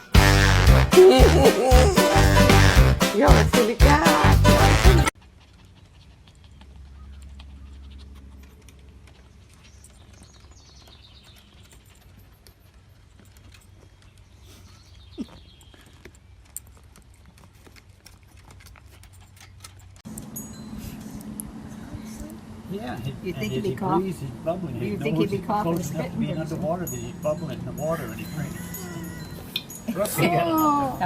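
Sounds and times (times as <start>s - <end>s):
faint animal calls: 28.3s - 29.6s.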